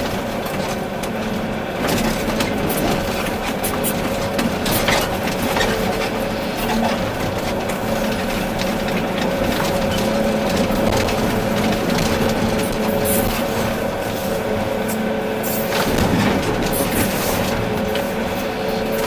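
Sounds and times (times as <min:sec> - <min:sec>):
excavator diesel engine running: 0:00.0 - 0:19.0
knocks and clatters: 0:01.8 - 0:14.0, 0:15.4 - 0:19.0.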